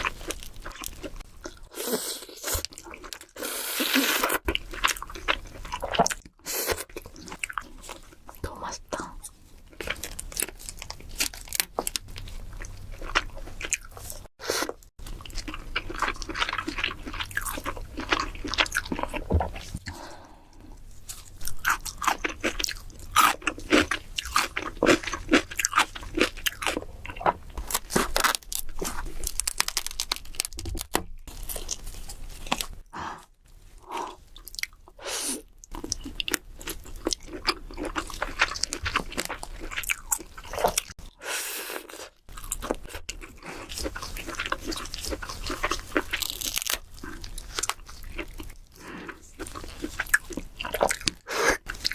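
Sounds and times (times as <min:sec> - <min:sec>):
crab shell crunching while eating: 0:09.7 - 0:19.8, 0:21.0 - 0:32.8, 0:35.4 - 0:41.0, 0:41.8 - 0:51.9.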